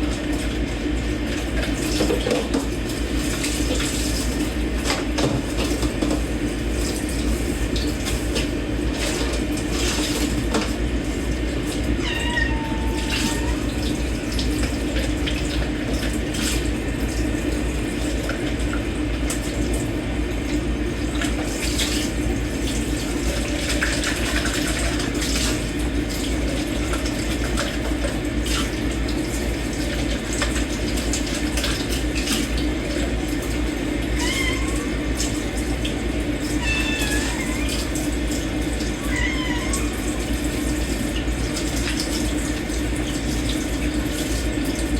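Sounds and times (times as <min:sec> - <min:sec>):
tap running into a sink: 0:01.4 - 0:10.8
cat meowing: 0:12.0 - 0:13.8, 0:34.2 - 0:35.0, 0:36.5 - 0:38.0, 0:38.9 - 0:40.3.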